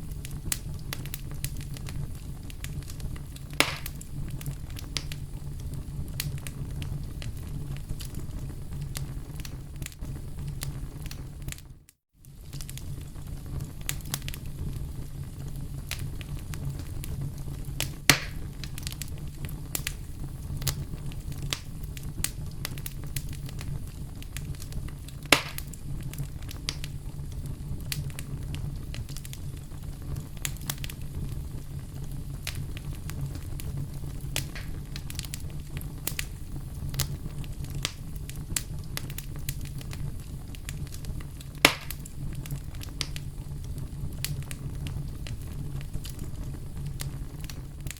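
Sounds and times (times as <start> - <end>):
fire crackling: 0.0 - 47.9
fire popping loudly: 0.0 - 47.9
low steady fire rumble: 0.0 - 47.9.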